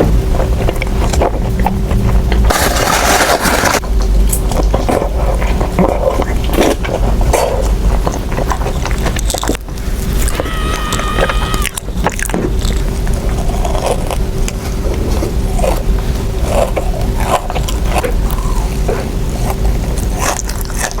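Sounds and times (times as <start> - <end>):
low hum and rumble: 0.0 - 20.9
electronic tone: 10.3 - 11.8.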